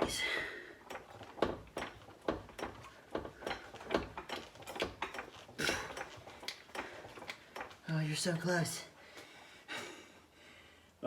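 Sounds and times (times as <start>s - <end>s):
metallic clunks and knocks: 1.0s - 6.2s.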